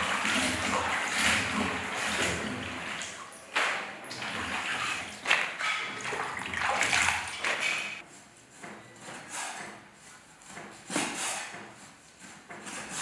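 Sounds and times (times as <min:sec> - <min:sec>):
water splashing and running: 0:00.0 - 0:08.0.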